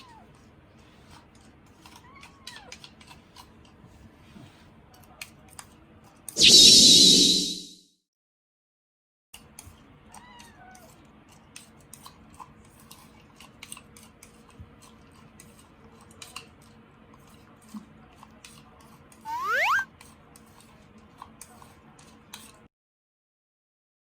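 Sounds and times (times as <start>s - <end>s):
faint short chirping calls: 6.4s - 7.8s, 19.3s - 19.8s
kitten meowing: 19.3s - 19.8s.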